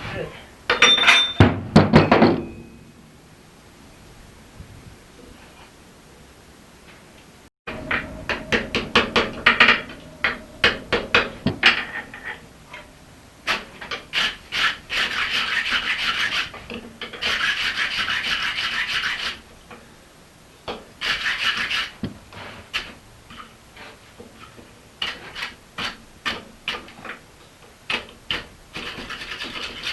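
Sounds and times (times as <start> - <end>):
scraping on steel axe head: 0.7 - 1.5.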